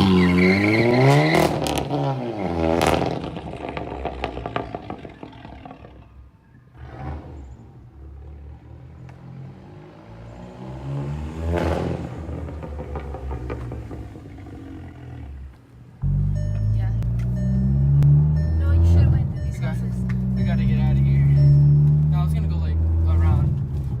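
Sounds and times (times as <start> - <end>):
car engine revving: 0.0 - 24.0
exhaust crackles and pops: 2.8 - 6.2.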